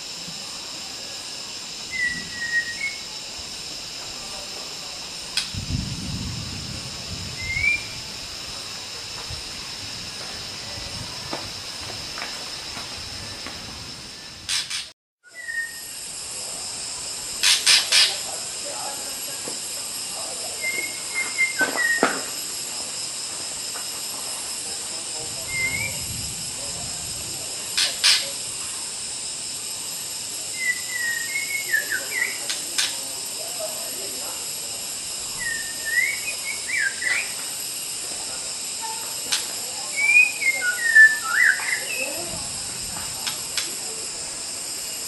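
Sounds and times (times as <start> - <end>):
high-pitched hiss: 0.0 - 45.0
bird whistling and calling: 1.9 - 3.1, 7.4 - 8.0, 14.5 - 15.9, 20.6 - 22.2, 25.5 - 26.0, 30.6 - 32.5, 35.4 - 37.4, 39.9 - 42.2.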